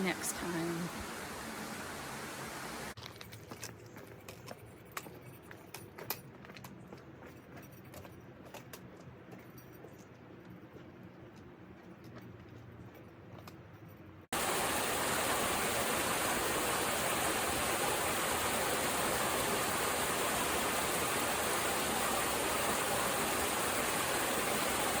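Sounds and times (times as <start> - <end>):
waterfall rushing: 0.0 - 3.0, 14.4 - 25.0.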